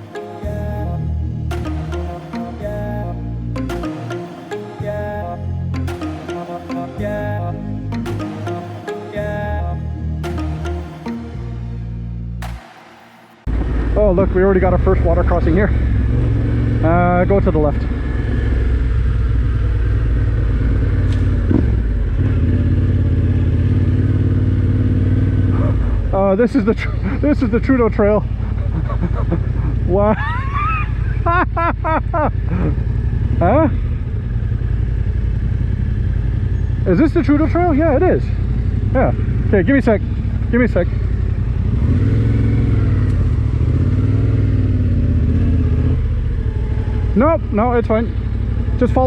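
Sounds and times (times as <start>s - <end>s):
motorcycle engine running: 13.5s - 49.0s.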